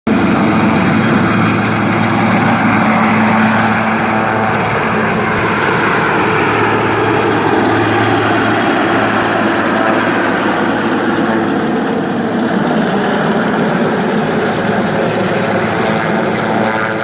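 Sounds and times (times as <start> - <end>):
helicopter engine and rotor: 0.1 - 17.0.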